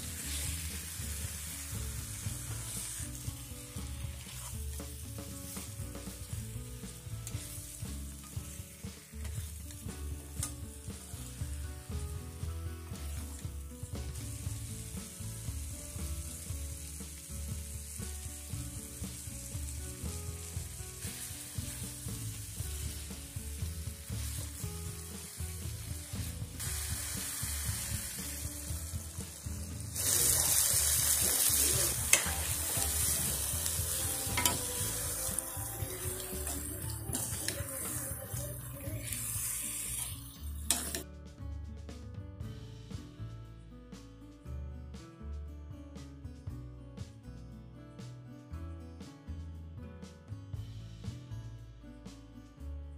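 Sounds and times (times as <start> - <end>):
water hissing in hot pan: 0.0 - 12.1, 12.9 - 41.0
food sizzling in an iron pan: 0.0 - 41.0
steel ladle stirring: 34.2 - 34.9, 35.8 - 38.4.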